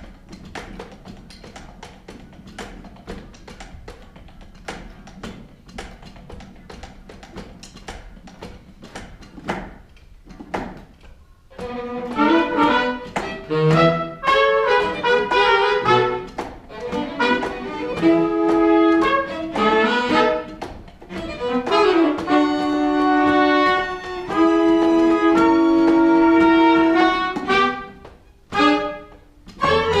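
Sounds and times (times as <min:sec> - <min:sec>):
pit orchestra playing: 0:11.5 - 0:30.0.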